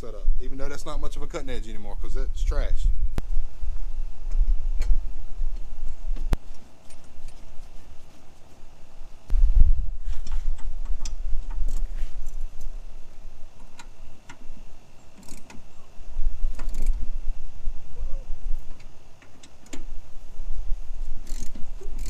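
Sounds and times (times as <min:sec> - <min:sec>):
low rumble: 0:00.0 - 0:06.4, 0:09.3 - 0:13.5.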